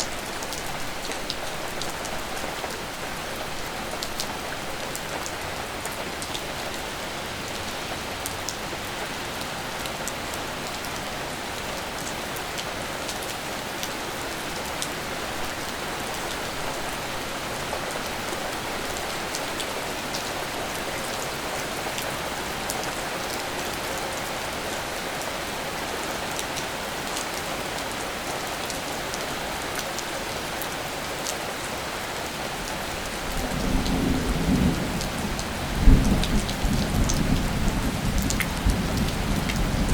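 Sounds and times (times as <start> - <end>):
steady rain falling: 0.0 - 39.9
low rumble of thunder: 33.3 - 39.9.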